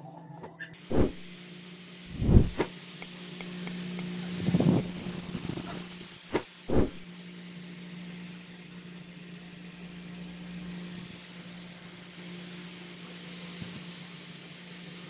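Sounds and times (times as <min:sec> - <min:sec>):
electric fan motor hum: 0:00.9 - 0:06.0.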